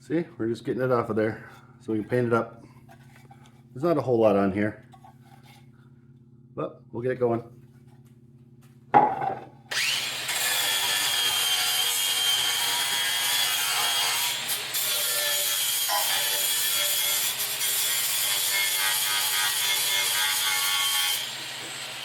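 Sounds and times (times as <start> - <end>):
power tool grinding rust off metal: 9.7 - 22.0.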